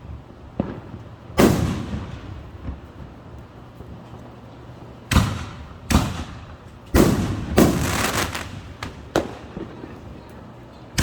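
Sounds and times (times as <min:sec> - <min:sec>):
fireworks banging: 0:05.1 - 0:10.1
fireworks crackling: 0:07.0 - 0:10.5.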